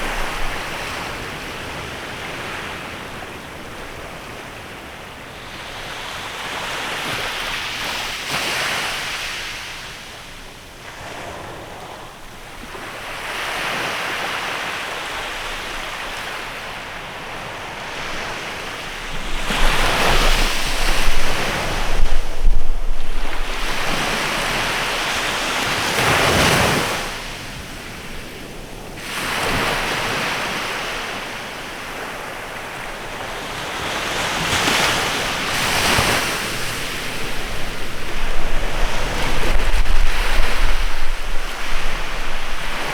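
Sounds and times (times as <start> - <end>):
wind rumble on microphone: 0.0 - 4.4, 17.4 - 29.8, 31.9 - 42.9
sea waves breaking on a beach: 0.0 - 42.9.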